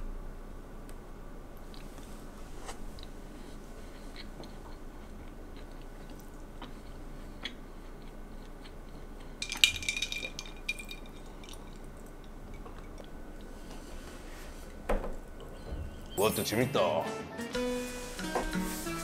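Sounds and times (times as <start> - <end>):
soft chewing with mouth ticks: 1.6 - 2.2, 2.8 - 9.4, 11.2 - 13.8.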